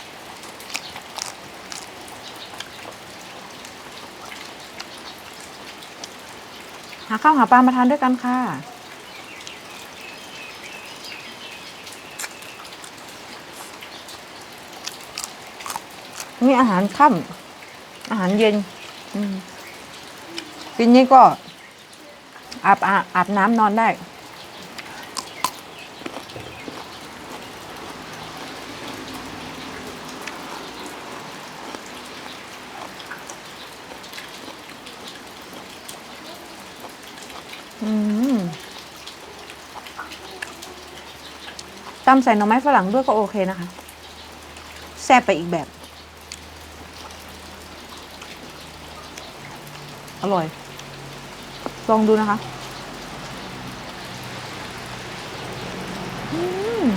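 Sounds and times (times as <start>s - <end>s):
heavy rain pattering: 0.0s - 56.9s
faint chirping calls: 8.8s - 22.0s, 55.3s - 56.9s.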